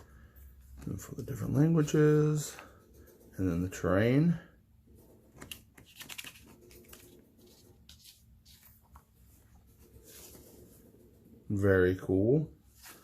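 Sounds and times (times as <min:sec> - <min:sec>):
soft rustling: 0:04.9 - 0:11.4, 0:12.6 - 0:13.0.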